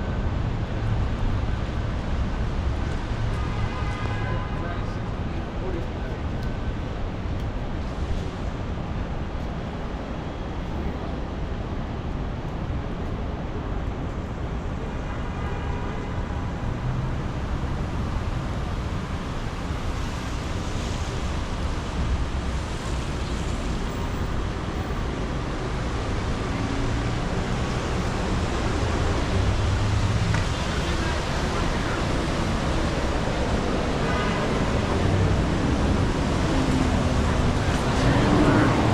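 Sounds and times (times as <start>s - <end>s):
rumble of passing vehicles: 0.0s - 38.9s.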